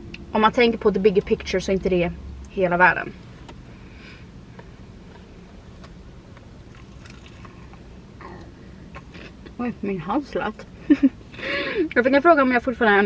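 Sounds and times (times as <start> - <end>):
person chewing chicken: 6.7 - 9.4.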